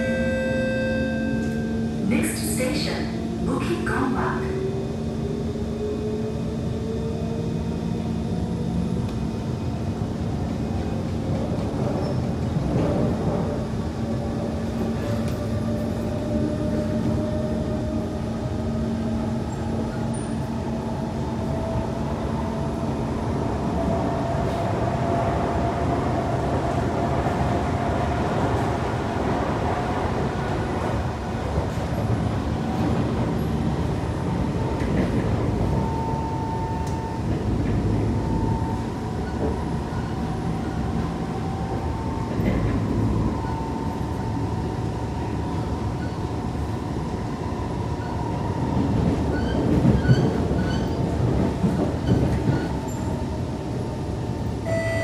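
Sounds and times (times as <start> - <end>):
train whine: 0.0 - 55.0
train wheels rumbling on rail: 1.2 - 55.0.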